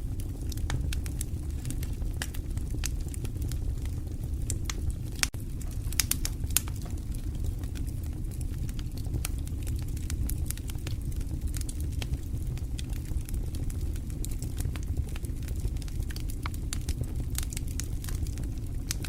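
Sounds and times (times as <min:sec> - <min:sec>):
low rush of flames: 0:00.0 - 0:19.0
wood fire crackling: 0:00.0 - 0:19.0.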